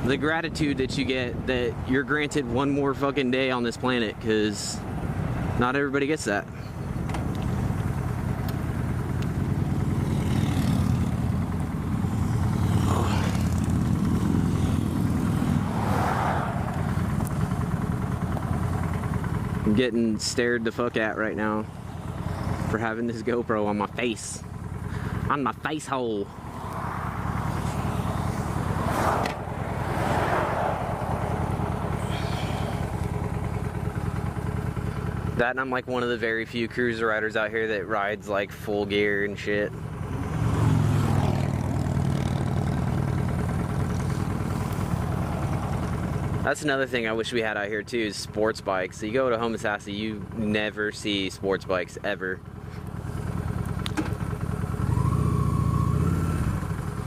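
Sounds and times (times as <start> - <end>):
motorcycle engine running: 3.4 - 57.0.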